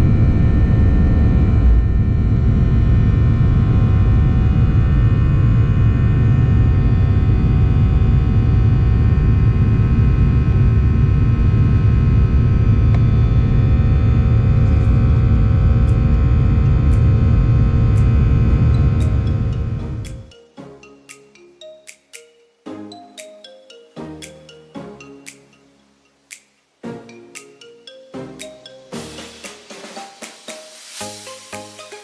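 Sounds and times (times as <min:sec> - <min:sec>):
jet engine rumble in cabin: 0:00.0 - 0:20.0
steady humming tones: 0:00.0 - 0:20.8.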